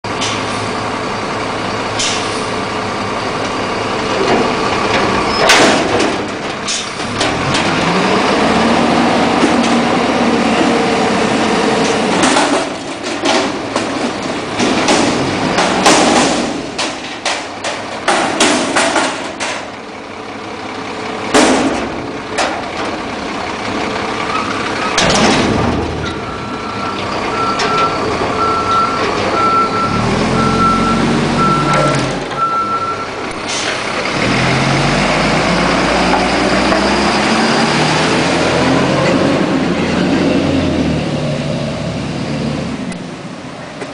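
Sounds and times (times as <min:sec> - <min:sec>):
diesel engine revving: 0:00.0 - 0:43.9
loud metallic bangs: 0:04.3 - 0:08.1, 0:11.7 - 0:19.8, 0:21.3 - 0:23.1, 0:24.9 - 0:28.1
reversing beeper: 0:26.0 - 0:33.2.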